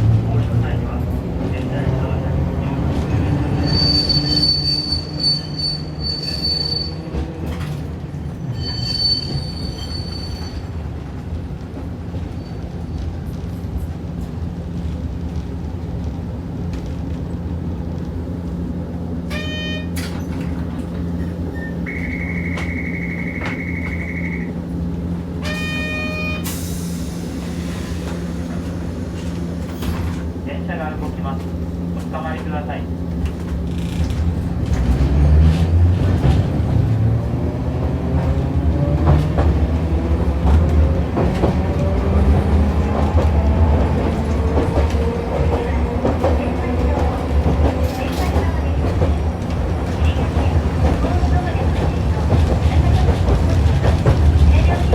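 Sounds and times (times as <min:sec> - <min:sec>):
tram hum: 0:00.0 - 0:54.9
high beep: 0:21.6 - 0:24.5
ringing signal tones: 0:21.6 - 0:24.5.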